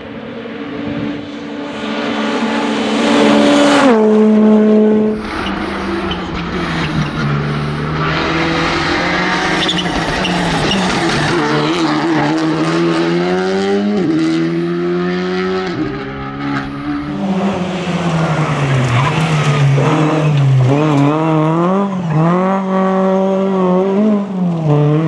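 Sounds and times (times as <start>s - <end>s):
rally car engine accelerating: 0.4s - 25.0s
tyre and road noise: 4.9s - 22.6s.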